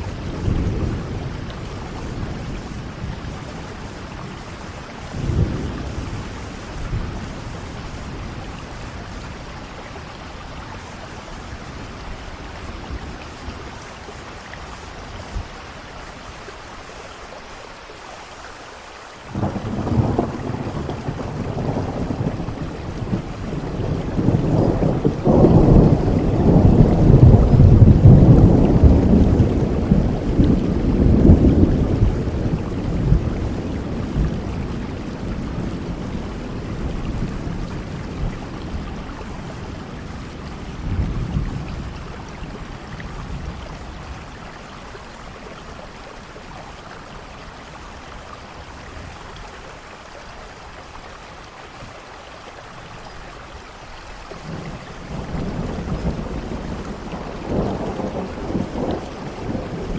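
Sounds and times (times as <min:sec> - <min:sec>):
rolling thunder: 0:00.0 - 0:10.4, 0:19.3 - 0:44.6, 0:54.4 - 0:59.9
steady rain: 0:00.0 - 0:59.9.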